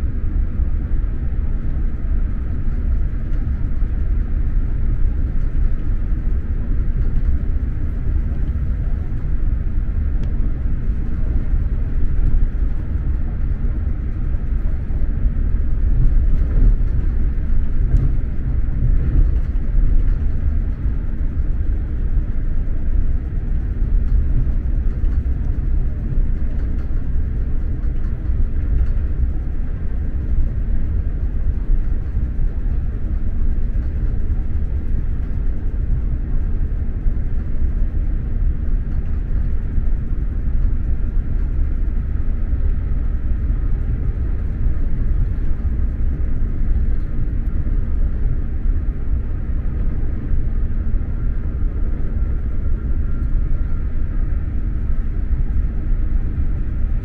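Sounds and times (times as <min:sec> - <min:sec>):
faint whine: 0:00.0 - 0:57.0
train rumble inside coach: 0:00.0 - 0:57.0.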